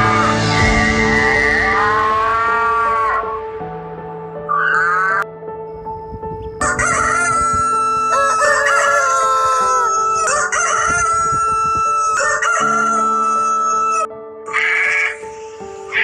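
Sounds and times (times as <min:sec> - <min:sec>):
background music: 0:00.0 - 0:16.0
rooster crowing: 0:04.5 - 0:05.2, 0:06.6 - 0:15.2.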